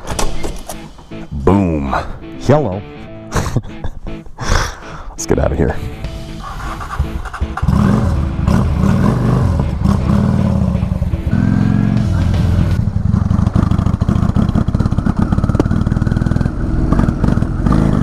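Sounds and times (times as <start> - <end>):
motorcycle engine accelerating: 6.1 - 18.0.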